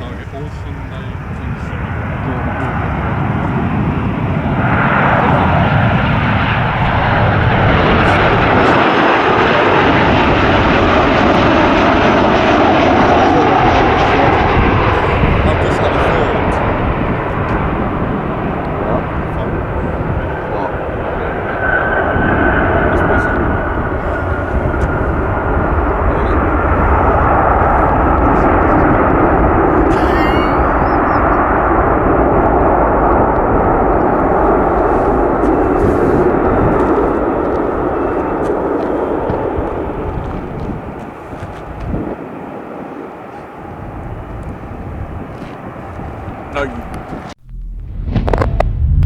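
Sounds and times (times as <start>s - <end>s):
jet airliner engines roaring: 0.0s - 49.0s
high chirp: 29.9s - 31.6s.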